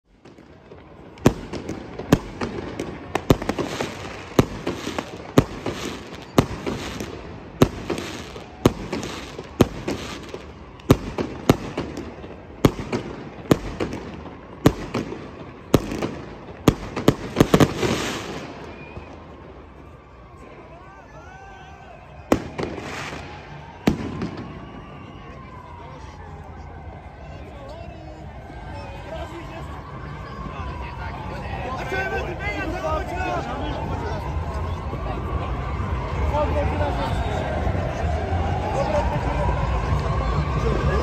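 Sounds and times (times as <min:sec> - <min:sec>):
fireworks bangs: 0:00.1 - 0:20.7, 0:22.0 - 0:25.8.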